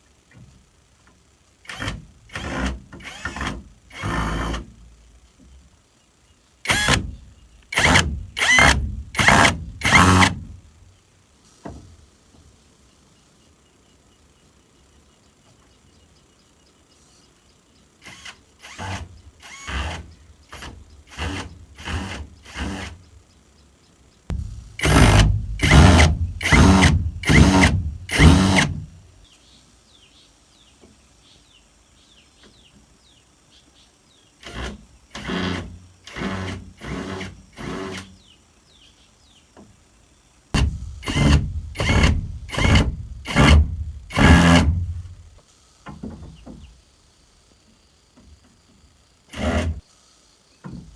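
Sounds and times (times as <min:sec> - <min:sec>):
hand tool working wood: 0:07.8 - 0:10.5, 0:20.6 - 0:23.0, 0:24.3 - 0:29.0, 0:34.4 - 0:38.1, 0:40.6 - 0:45.2.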